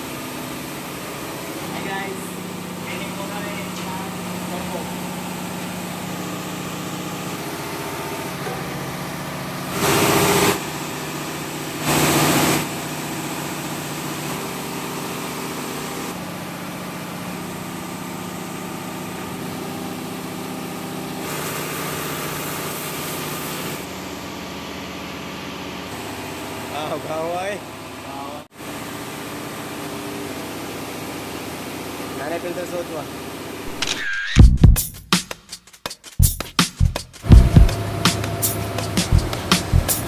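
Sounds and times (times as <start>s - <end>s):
loud burst of noise: 9.6s - 13.4s.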